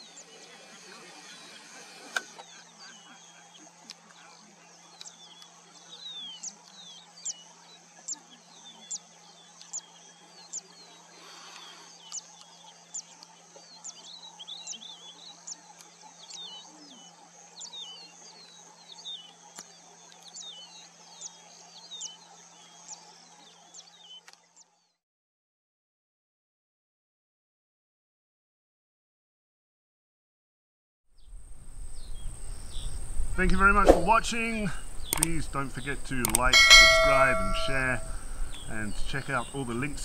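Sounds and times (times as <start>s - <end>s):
bird chirps: 0.0s - 25.0s, 31.2s - 40.0s
low steady hum: 31.2s - 40.0s
steady high hiss: 31.2s - 40.0s
bird repeating high falling note: 36.5s - 38.3s.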